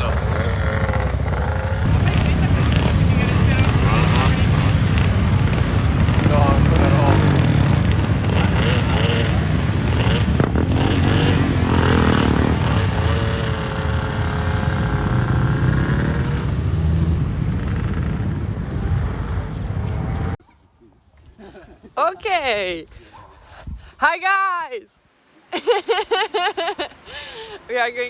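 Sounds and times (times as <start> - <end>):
vehicle engine and road noise: 0.0 - 20.4.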